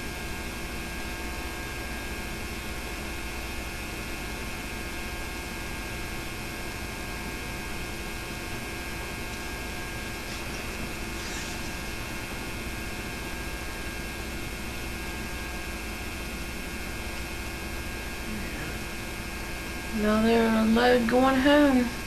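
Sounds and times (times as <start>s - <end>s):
electrical hum: 0.0s - 22.0s
tape hiss: 6.0s - 22.0s.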